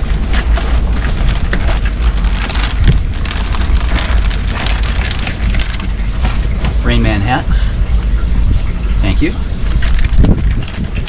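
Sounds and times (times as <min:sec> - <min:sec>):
bag rustling and crinkling: 0:00.0 - 0:07.2, 0:09.6 - 0:11.0
steady low rumble: 0:00.0 - 0:11.0.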